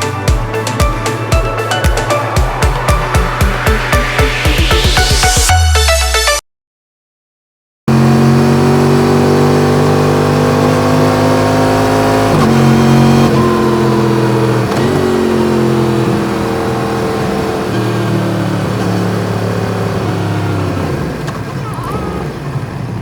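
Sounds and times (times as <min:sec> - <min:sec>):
motorcycle engine revving through gears: 0:07.9 - 0:23.0.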